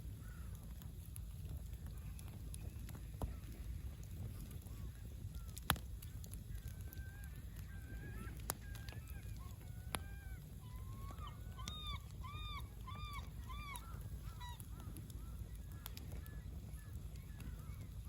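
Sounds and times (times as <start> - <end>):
campfire pops: 0.0 - 18.0
low steady rumble: 0.0 - 18.0.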